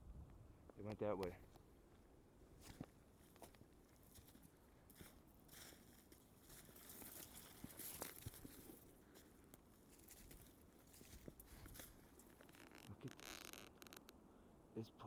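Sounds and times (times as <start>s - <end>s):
footsteps crunching in snow: 2.6s - 12.8s.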